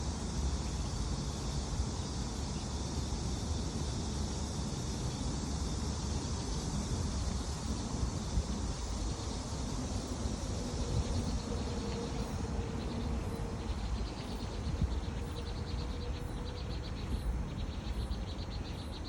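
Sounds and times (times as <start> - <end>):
steady high hiss: 0.0 - 19.0
wind buffeting microphone: 6.6 - 18.3.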